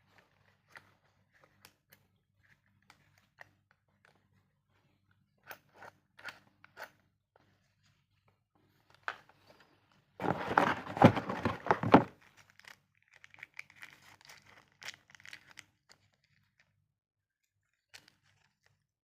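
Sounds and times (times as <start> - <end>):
soft rustling: 10.2 - 12.1
packaging tearing and crinkling: 10.2 - 15.6.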